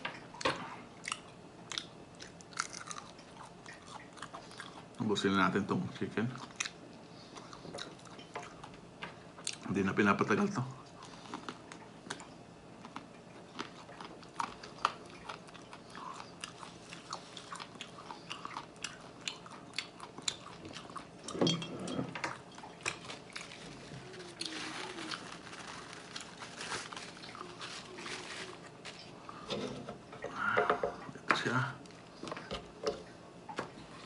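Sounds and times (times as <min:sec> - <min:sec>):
chewing and biting chicken wings: 0:01.0 - 0:04.9, 0:10.9 - 0:21.4.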